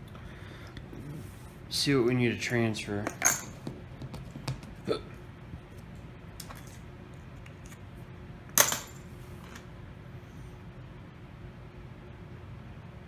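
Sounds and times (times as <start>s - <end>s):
metal tool set down: 3.0s - 3.6s, 8.6s - 9.6s.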